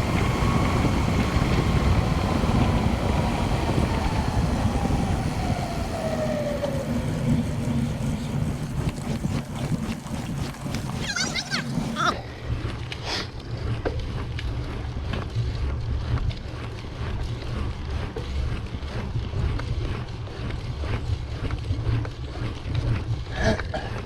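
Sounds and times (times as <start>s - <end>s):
wind buffeting microphone: 0.0s - 12.7s.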